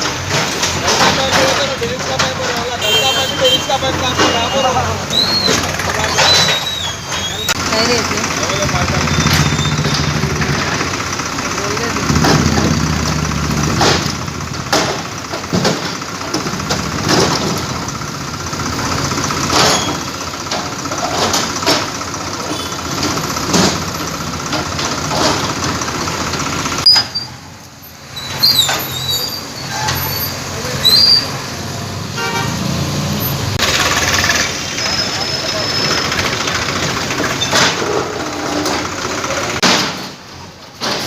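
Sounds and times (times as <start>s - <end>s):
vehicles passing: 0.0s - 41.0s
vehicle horns: 2.6s - 5.0s, 32.1s - 32.8s.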